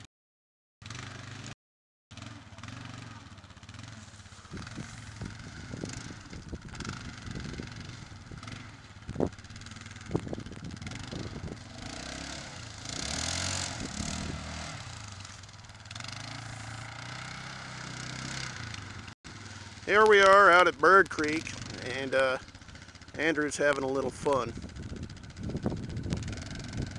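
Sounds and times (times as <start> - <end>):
atv engine revving: 0.8 - 26.9.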